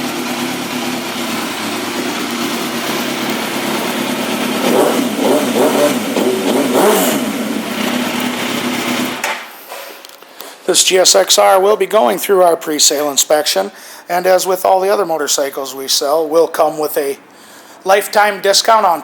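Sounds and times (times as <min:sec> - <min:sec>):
motorcycle engine idling and revving: 0:00.0 - 0:09.3.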